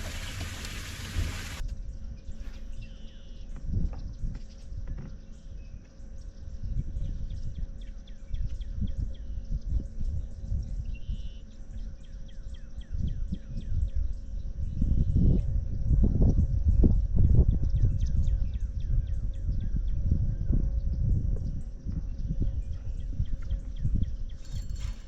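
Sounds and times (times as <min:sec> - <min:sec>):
wind buffeting microphone: 0:00.0 - 0:01.6, 0:06.5 - 0:11.1, 0:12.8 - 0:25.0.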